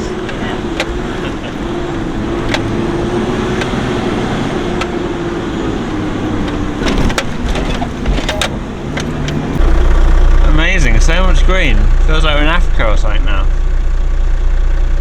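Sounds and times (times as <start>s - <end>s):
vehicle engine drone: 0.0s - 15.0s
knocks and rattles from bumps: 6.4s - 9.6s.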